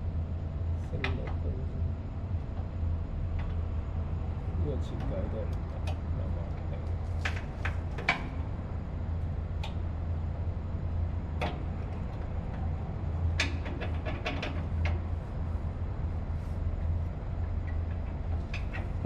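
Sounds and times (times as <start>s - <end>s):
low machinery hum: 0.0s - 19.0s.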